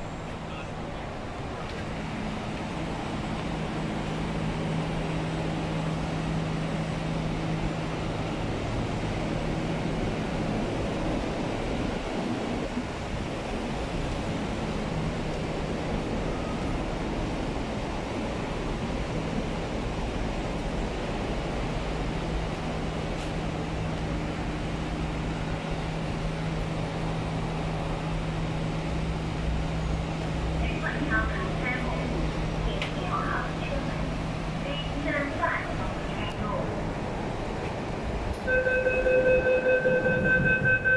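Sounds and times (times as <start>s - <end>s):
low hum of train equipment: 0.0s - 40.9s
train carriage rumbling: 0.0s - 40.9s.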